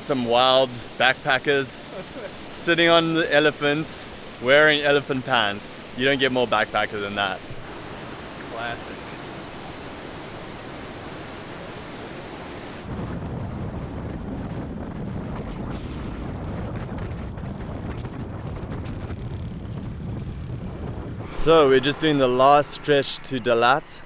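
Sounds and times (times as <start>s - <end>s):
waterfall rushing: 0.0s - 12.9s, 21.2s - 24.0s
wind rumble on microphone: 3.7s - 21.8s.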